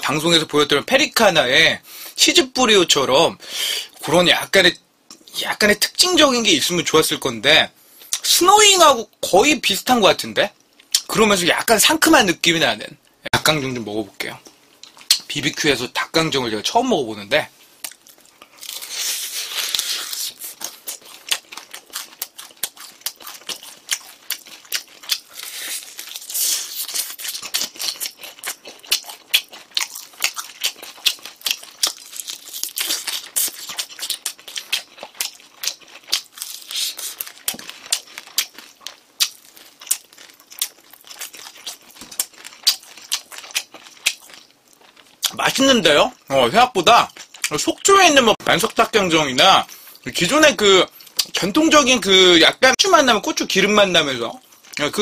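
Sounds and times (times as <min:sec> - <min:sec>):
wet mouth sounds: 0:14.4 - 0:15.3, 0:17.8 - 0:38.6
crisp crunching of fried chicken: 0:17.8 - 0:49.6.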